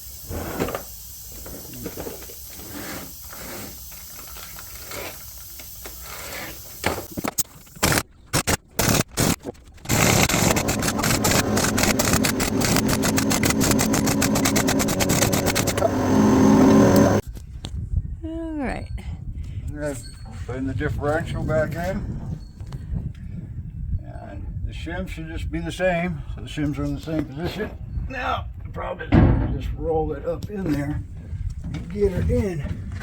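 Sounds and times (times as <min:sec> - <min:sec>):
impact wrench hammering: 0:09.9 - 0:17.2.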